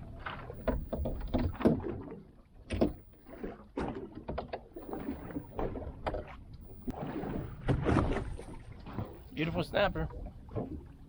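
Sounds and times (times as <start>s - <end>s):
knocks and clatter on boat: 0.0s - 11.0s.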